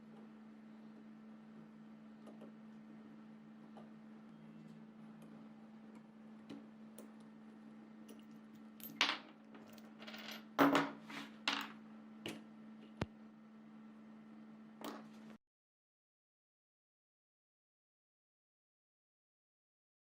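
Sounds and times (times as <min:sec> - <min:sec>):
steady low hum: 0:00.0 - 0:10.2
metal parts clinking: 0:08.1 - 0:10.5.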